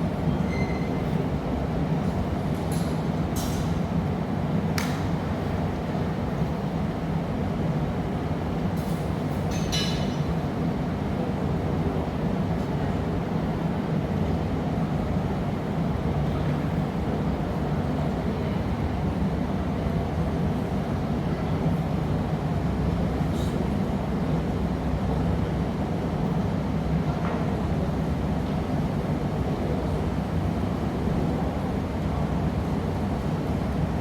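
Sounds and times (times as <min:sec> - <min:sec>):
furnace and ventilation roar: 0:00.0 - 0:34.0.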